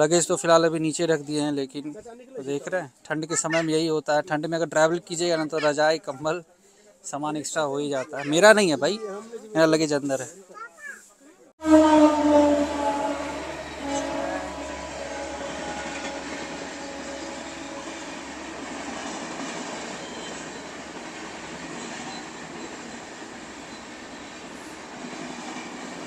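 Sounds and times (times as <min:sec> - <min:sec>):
low hum: 0:11.6 - 0:19.0
train rumbling: 0:11.6 - 0:26.0.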